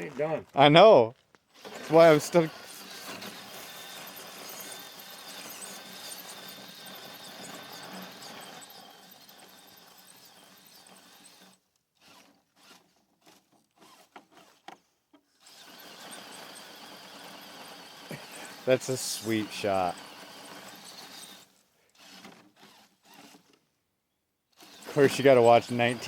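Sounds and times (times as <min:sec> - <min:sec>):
electric motor whining: 0:01.6 - 0:09.8, 0:15.5 - 0:23.5, 0:24.6 - 0:26.0.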